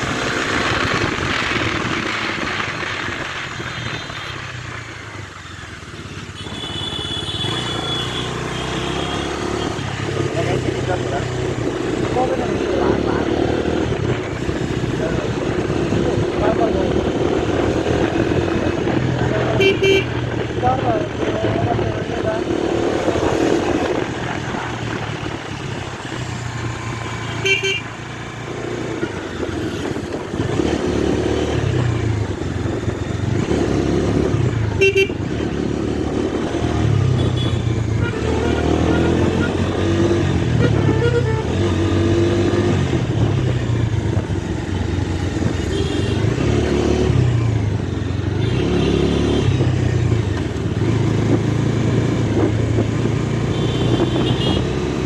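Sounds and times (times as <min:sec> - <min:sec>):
motorcycle engine revving: 0:00.0 - 0:55.0
horn tooting: 0:06.3 - 0:10.0, 0:19.3 - 0:20.4, 0:27.2 - 0:28.0, 0:34.6 - 0:35.5, 0:37.0 - 0:42.2, 0:45.5 - 0:46.5, 0:53.5 - 0:54.8.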